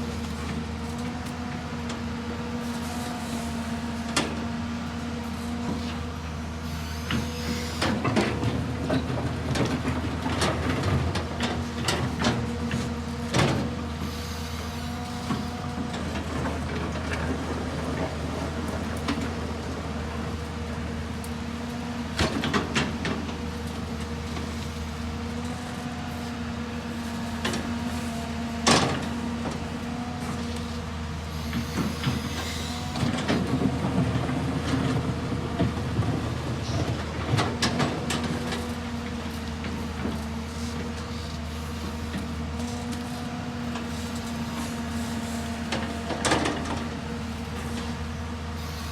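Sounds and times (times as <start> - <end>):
excavator engine running: 0.0 - 48.9.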